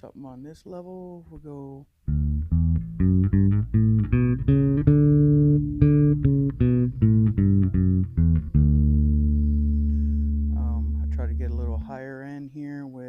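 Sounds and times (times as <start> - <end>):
electric bass plucked notes: 2.1 - 12.2.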